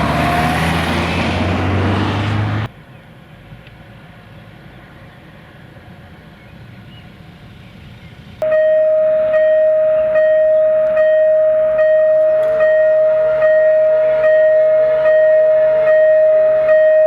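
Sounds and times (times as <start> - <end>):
level crossing warning bell: 8.4 - 17.0.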